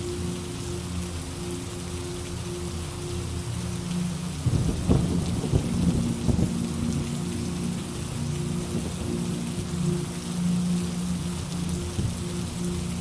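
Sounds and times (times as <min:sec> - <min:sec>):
steady rain: 0:00.0 - 0:13.0
thunder rumbling: 0:04.5 - 0:07.1.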